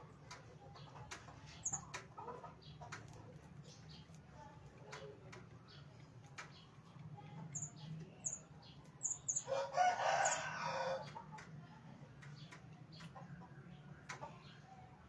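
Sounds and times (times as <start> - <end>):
small birds chirping: 0.2 - 11.5, 12.1 - 15.0
rooster crowing: 9.5 - 11.0.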